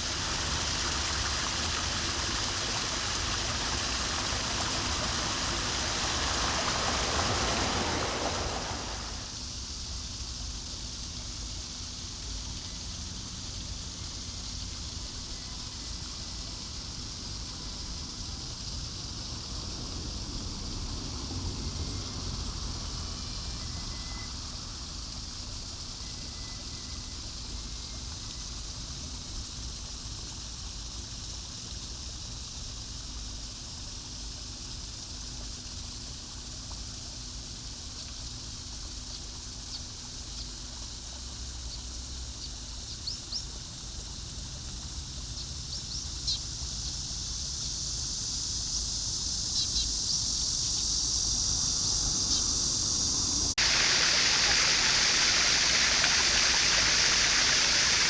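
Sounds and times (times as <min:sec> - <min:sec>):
rushing water: 0:00.0 - 0:09.4, 0:51.3 - 0:58.0
outdoor hiss: 0:00.0 - 0:58.0.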